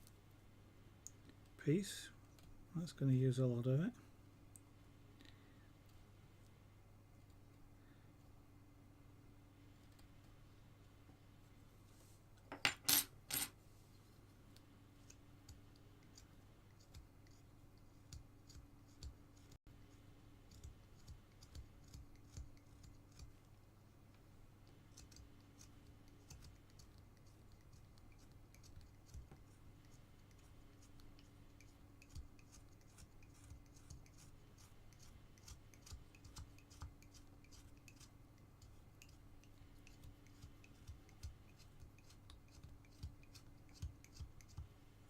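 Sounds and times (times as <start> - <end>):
carving knife snicks and scrapes: 20.5 - 23.3, 32.0 - 39.2.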